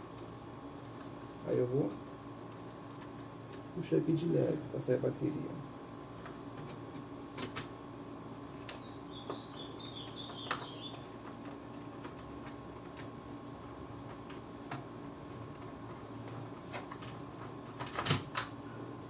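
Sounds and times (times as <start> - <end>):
faint hum: 0.0 - 19.0
high wavering chirp: 8.8 - 11.0.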